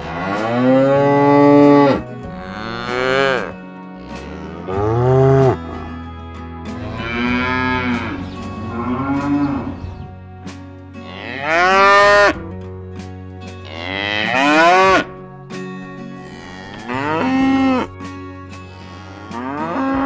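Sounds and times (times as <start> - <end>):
cows mooing: 0.0 - 6.1, 6.8 - 10.2, 11.0 - 12.4, 13.6 - 15.1, 16.1 - 18.0, 18.6 - 20.0.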